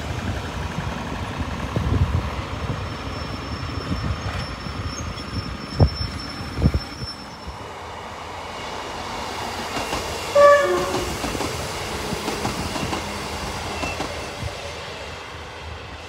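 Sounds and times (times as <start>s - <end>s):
train wheels clattering: 9.4s - 14.8s
two-note train horn: 10.3s - 11.2s.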